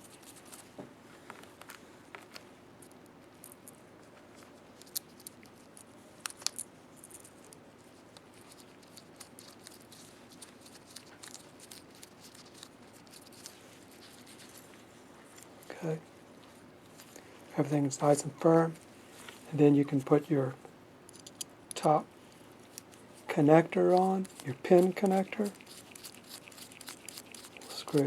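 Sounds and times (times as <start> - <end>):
small metal parts clicking: 21.1 - 21.5.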